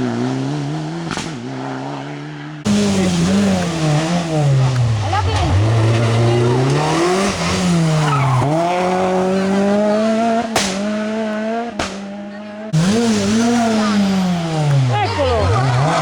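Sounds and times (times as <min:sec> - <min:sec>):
rally car engine revving: 0:00.0 - 0:16.0
tyres squealing: 0:02.7 - 0:10.4, 0:12.7 - 0:16.0
sharp cracks: 0:10.5 - 0:11.1, 0:11.8 - 0:12.1.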